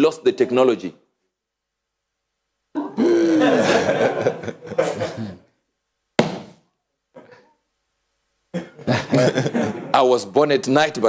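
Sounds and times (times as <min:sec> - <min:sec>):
crowd laughing: 0:03.2 - 0:05.4, 0:08.6 - 0:10.0.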